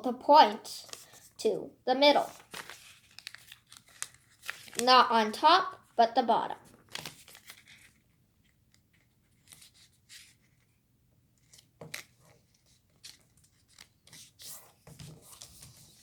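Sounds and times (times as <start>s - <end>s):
paper rustling and crinkling: 0.8s - 1.4s, 2.2s - 5.1s, 6.6s - 10.7s, 11.4s - 16.0s.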